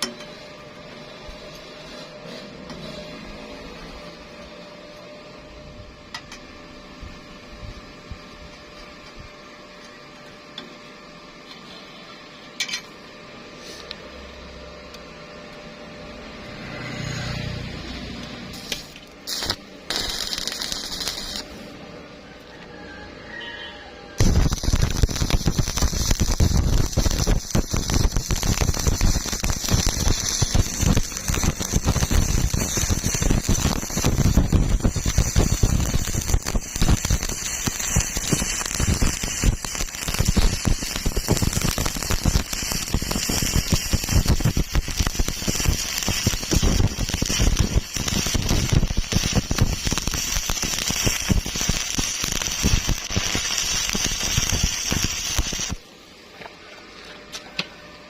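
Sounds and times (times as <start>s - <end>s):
welding arc crackling: 16.1s - 21.8s, 24.2s - 55.9s.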